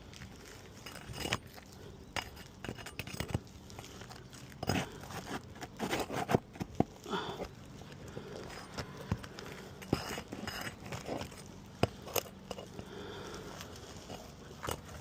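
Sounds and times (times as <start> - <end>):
tool scraping roof shingles: 0.2 - 7.6, 8.2 - 12.7.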